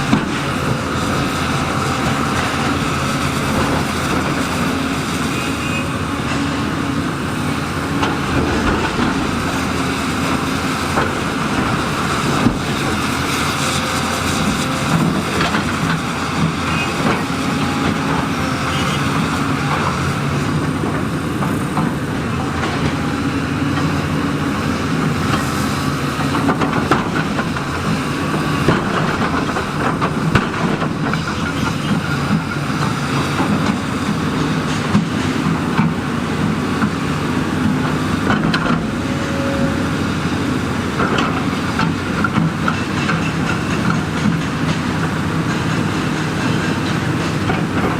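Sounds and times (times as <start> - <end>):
heavy diesel machinery running: 0.0 - 47.9
clanks and knocks: 7.9 - 13.1.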